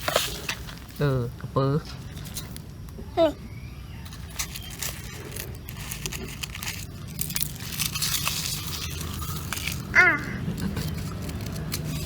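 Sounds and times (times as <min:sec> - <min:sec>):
crinkling and rustling: 0:00.0 - 0:01.1, 0:01.8 - 0:02.9, 0:04.0 - 0:12.0.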